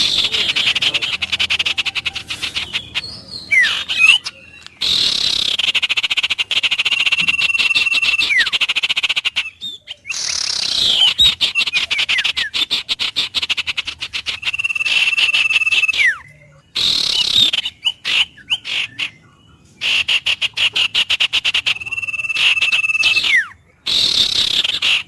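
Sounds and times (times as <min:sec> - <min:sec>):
fast-pulsing animal trill: 0:00.0 - 0:04.2
bird whistles: 0:00.0 - 0:25.0.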